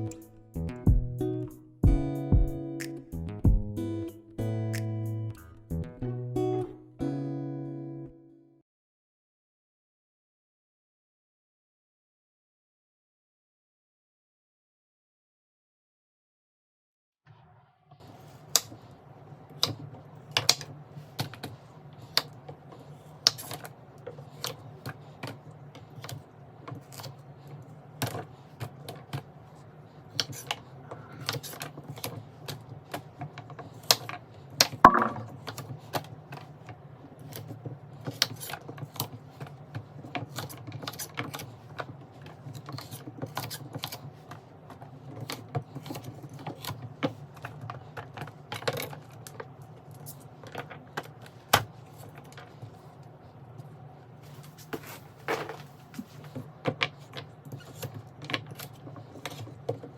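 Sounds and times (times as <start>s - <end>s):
jars clicking and clinking: 34.9s - 35.4s.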